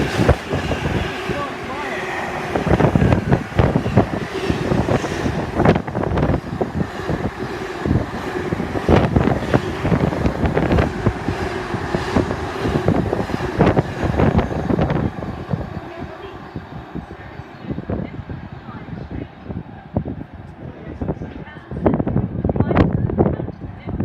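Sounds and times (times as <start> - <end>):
freight train wagons rumbling: 0.0 - 24.0
wind buffeting microphone: 0.0 - 24.0.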